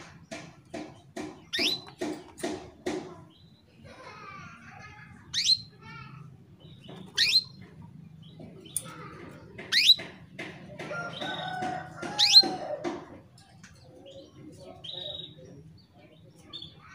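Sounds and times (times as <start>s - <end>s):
soft bird twittering: 0.3s - 2.4s, 5.3s - 5.8s, 6.6s - 9.0s, 9.7s - 10.1s, 13.8s - 16.9s.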